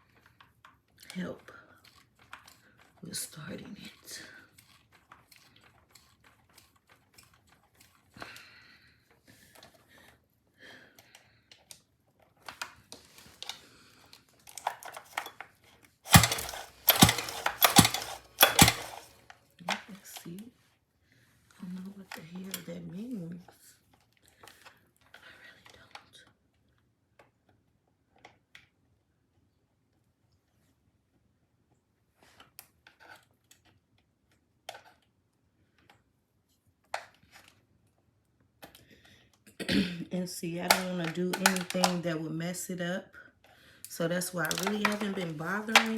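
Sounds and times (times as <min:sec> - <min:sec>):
scooter pull-start clicks and rattles: 0:00.0 - 0:08.4, 0:14.4 - 0:20.5, 0:40.6 - 0:42.1, 0:43.9 - 0:45.9
loud metallic clanks: 0:16.1 - 0:19.1.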